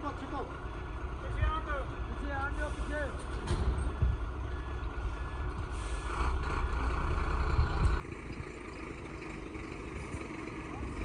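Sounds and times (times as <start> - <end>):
heavy truck engine running: 0.0 - 11.0.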